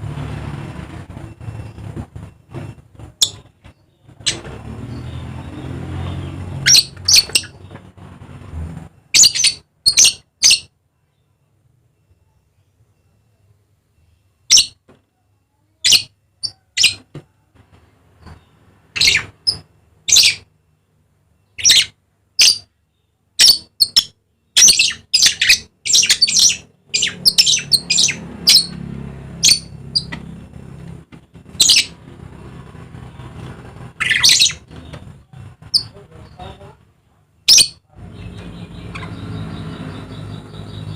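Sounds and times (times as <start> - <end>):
parrot shrill calls: 9.2 - 10.7, 23.4 - 28.8, 34.0 - 34.6.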